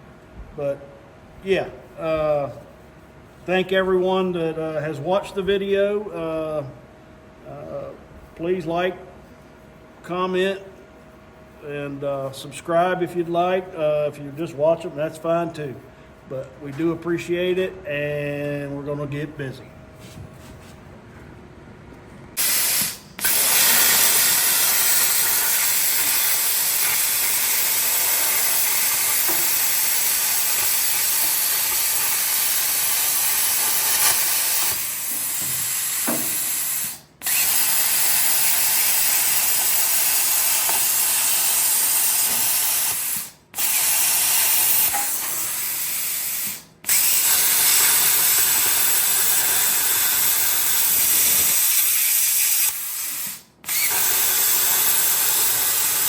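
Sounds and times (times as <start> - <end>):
plasma cutter hissing: 22.4 - 37.0.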